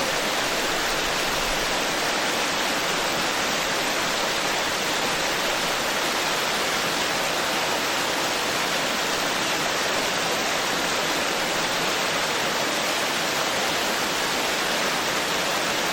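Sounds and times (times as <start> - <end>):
stream flowing over rocks: 0.0 - 15.9.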